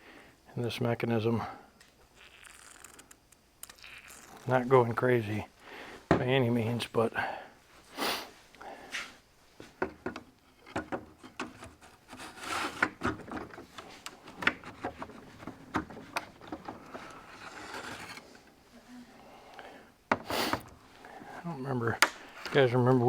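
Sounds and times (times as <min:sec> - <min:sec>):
metal rubbing and scraping: 0:16.8 - 0:18.2.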